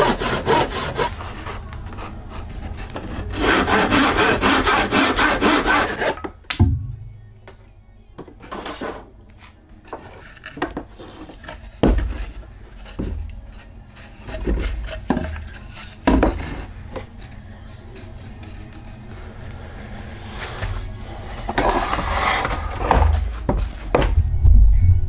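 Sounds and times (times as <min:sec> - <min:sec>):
wood rubbing: 0:00.0 - 0:06.4, 0:08.4 - 0:24.1
wooden knocks and clunks: 0:06.2 - 0:07.0, 0:10.6 - 0:13.4, 0:14.3 - 0:17.1, 0:22.8 - 0:24.6.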